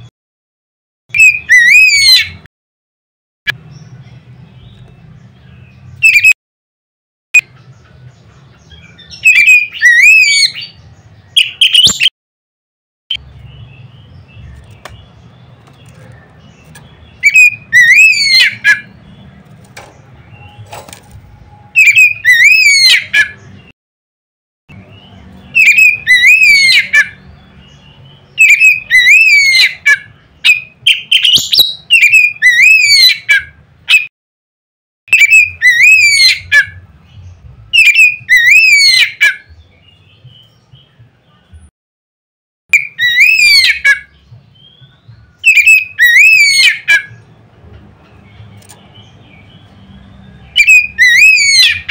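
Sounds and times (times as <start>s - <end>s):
bird singing whistled phrases: 1.1s - 2.4s, 6.0s - 6.4s, 8.9s - 10.8s, 11.4s - 12.1s, 17.2s - 18.9s, 21.4s - 23.2s, 25.5s - 27.1s, 28.4s - 34.0s, 35.1s - 36.6s, 37.8s - 40.5s, 42.7s - 47.2s, 50.4s - 51.9s.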